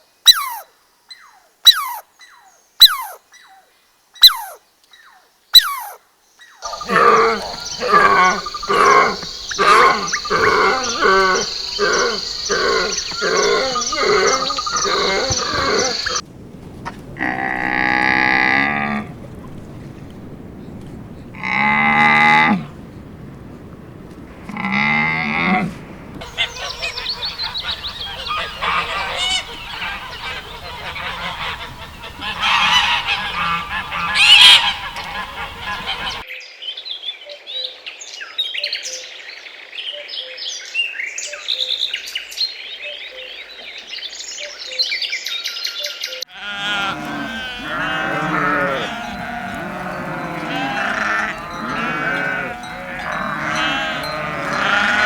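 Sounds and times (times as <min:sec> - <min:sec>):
geese honking: 0:06.6 - 0:16.2, 0:26.2 - 0:36.2, 0:46.3 - 0:55.0.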